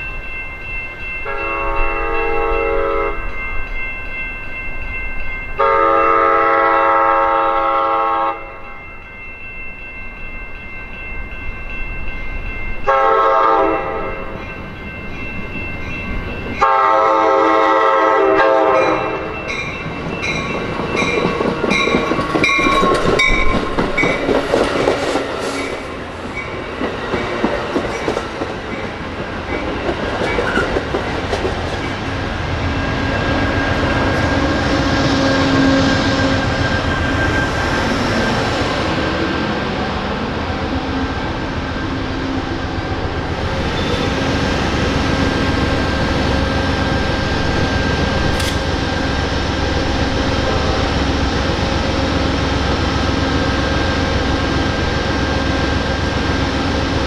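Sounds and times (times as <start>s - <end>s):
train wheels on rails: 0.0s - 57.0s
train horn blasts: 1.2s - 3.3s, 5.6s - 8.6s, 12.9s - 14.2s, 16.6s - 19.3s
clickety-clack over rail joints: 19.5s - 32.2s, 48.2s - 48.8s.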